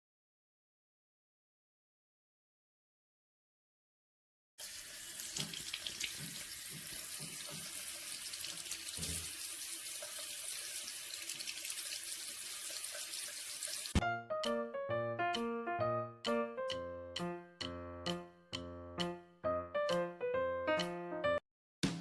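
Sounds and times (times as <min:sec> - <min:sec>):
running water rushing: 0:04.6 - 0:14.0
keyboard tune: 0:14.0 - 0:21.4.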